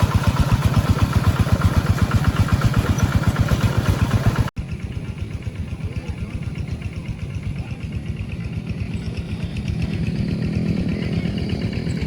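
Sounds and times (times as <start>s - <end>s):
quieter engine sound: 0.0s - 12.0s
tractor engine chugging: 0.0s - 12.0s.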